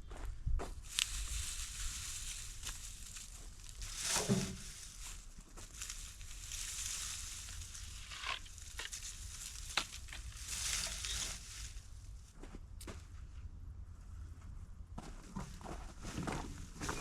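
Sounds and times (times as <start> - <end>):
dry plant debris crunching: 0.7 - 12.4.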